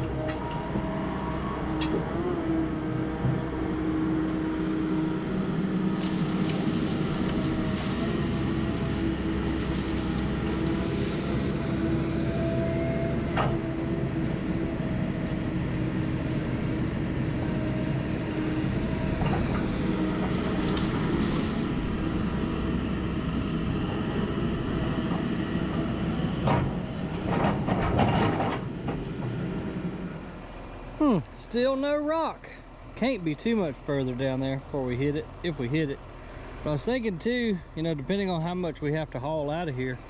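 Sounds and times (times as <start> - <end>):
excavator engine running: 0.0 - 40.0
metallic clanks and scraping: 26.5 - 29.0.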